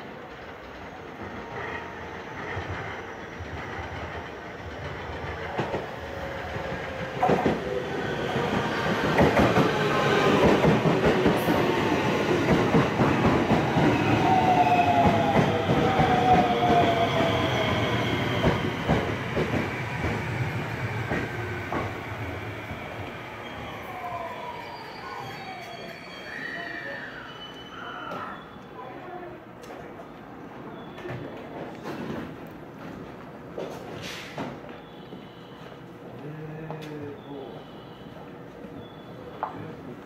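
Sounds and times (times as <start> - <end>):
train wheels clacking: 2.4 - 22.3.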